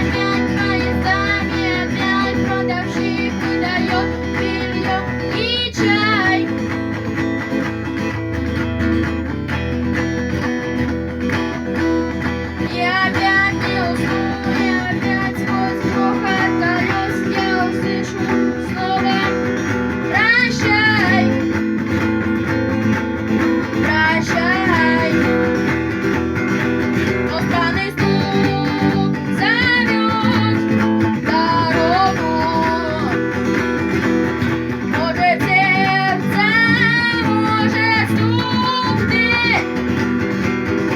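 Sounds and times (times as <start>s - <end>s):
person singing: 0.0s - 7.1s, 12.5s - 21.6s, 23.6s - 25.9s, 27.1s - 33.6s, 34.7s - 40.0s
acoustic guitar strumming: 0.0s - 40.9s.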